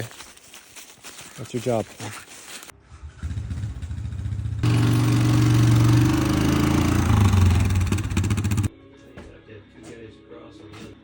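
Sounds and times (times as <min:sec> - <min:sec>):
vehicle engine running: 0:02.9 - 0:08.7.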